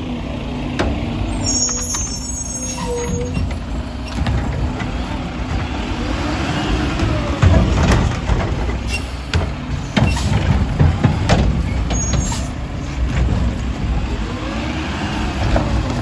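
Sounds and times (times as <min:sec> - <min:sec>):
garbage truck engine running: 0:00.0 - 0:16.0
brief high squeals: 0:01.4 - 0:03.4.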